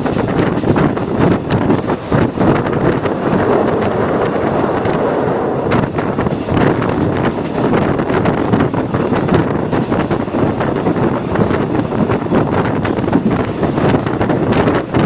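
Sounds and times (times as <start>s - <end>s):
rattles and clicks: 0.0s - 11.7s
train rumbling: 0.0s - 15.0s
wind on microphone: 0.0s - 15.0s.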